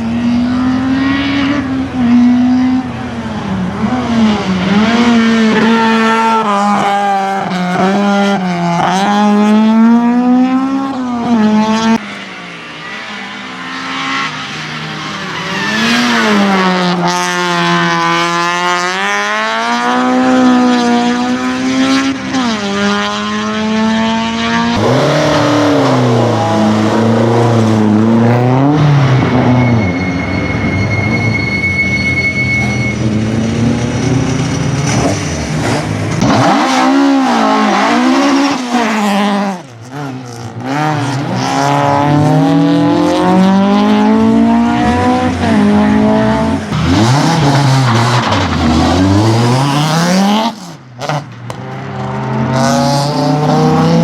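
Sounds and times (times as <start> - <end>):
racing car engine revving: 12.8 - 31.2, 33.0 - 54.0.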